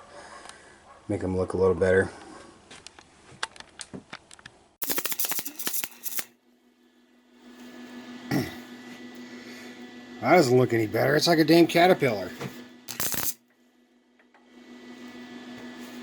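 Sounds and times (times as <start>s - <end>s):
welder arc crackling: 4.8s - 6.3s, 12.9s - 13.4s.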